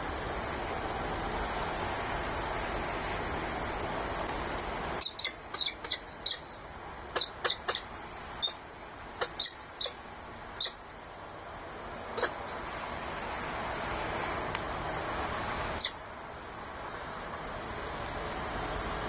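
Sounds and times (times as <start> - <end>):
steady background hiss: 0.0 - 19.0
bird chirping: 5.0 - 6.6, 7.2 - 10.0, 10.6 - 10.8.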